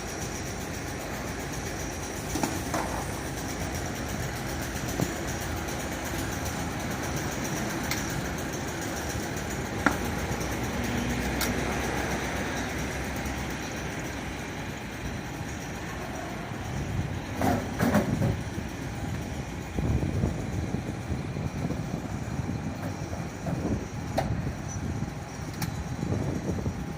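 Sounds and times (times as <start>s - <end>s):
vehicle noise: 0.0s - 26.9s.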